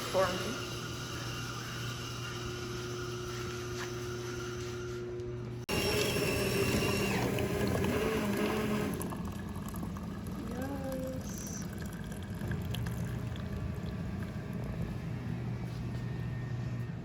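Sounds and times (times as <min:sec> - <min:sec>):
machine whir: 0:00.0 - 0:09.8
coffee machine pump hum: 0:00.0 - 0:17.0.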